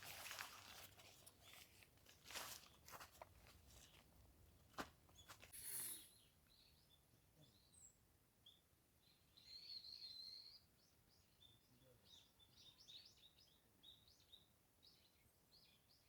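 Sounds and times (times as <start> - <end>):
soft rustle: 0.0 - 6.2
faint bird chirps: 5.2 - 16.0.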